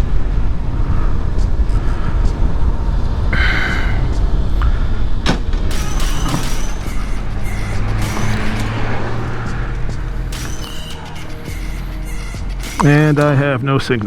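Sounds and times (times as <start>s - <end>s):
brief high squeal: 5.7s - 9.6s.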